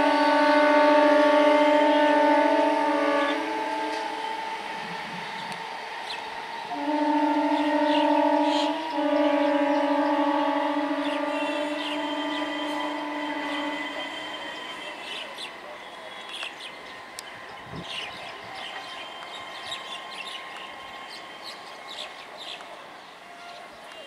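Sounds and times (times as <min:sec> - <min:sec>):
train horn chord: 0:00.0 - 0:18.0
train running on track: 0:00.0 - 0:24.0
birds chirping: 0:04.2 - 0:06.7, 0:07.3 - 0:24.0.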